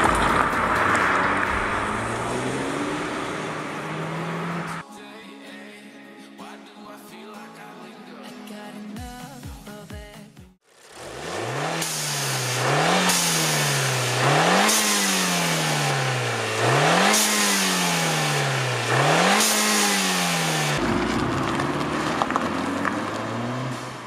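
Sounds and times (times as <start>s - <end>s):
car engine revving: 0.0s - 4.8s, 10.8s - 24.0s.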